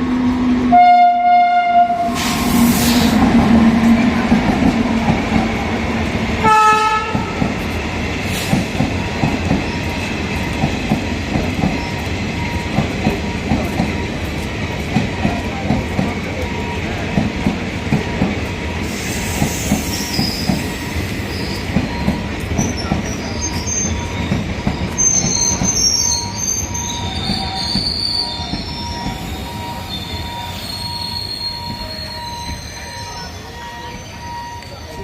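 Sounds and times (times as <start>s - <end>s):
train wheels clacking on rail joints: 2.2s - 30.3s
wheel and brake squeals: 18.8s - 35.0s.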